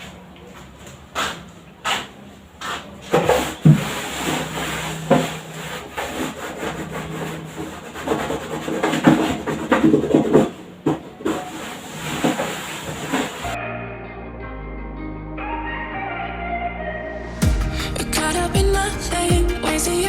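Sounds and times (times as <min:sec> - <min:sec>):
cloth rubbing a hard surface: 0:01.2 - 0:10.0.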